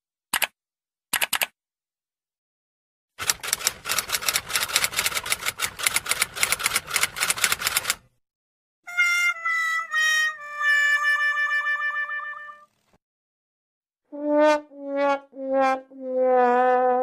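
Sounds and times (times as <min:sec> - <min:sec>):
typing keystrokes: 0:01.2 - 0:01.5, 0:03.2 - 0:08.0
mechanical typewriter typing: 0:03.2 - 0:08.1.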